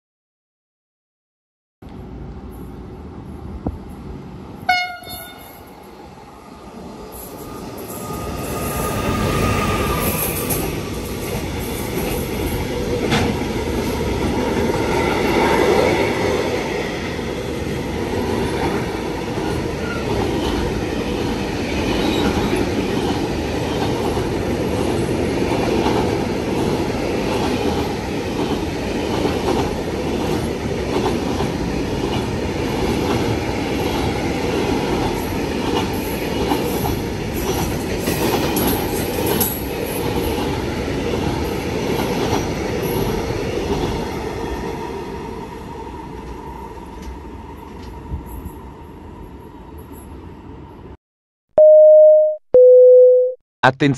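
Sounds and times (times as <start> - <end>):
train wheels rumbling on rails: 6.8 - 48.6.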